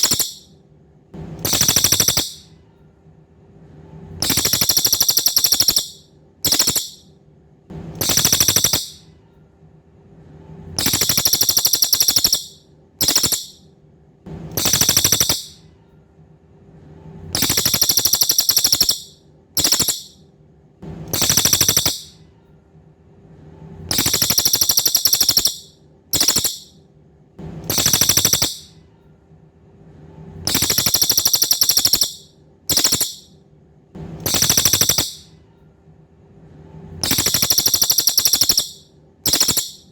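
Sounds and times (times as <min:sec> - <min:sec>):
songbird buzzy trills: 0:00.0 - 0:00.5, 0:01.4 - 0:02.5, 0:04.2 - 0:07.0, 0:08.0 - 0:09.0, 0:10.8 - 0:13.6, 0:14.6 - 0:15.6, 0:17.4 - 0:20.2, 0:21.1 - 0:22.2, 0:23.9 - 0:26.7, 0:27.7 - 0:28.7, 0:30.5 - 0:33.3, 0:34.2 - 0:35.3, 0:37.0 - 0:39.9
faint steady hum: 0:00.0 - 0:39.9.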